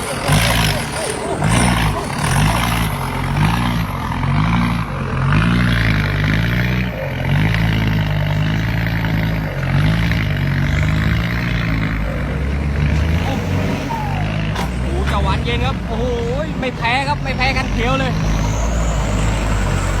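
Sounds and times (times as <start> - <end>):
diesel truck engine revving: 0.0 - 20.0.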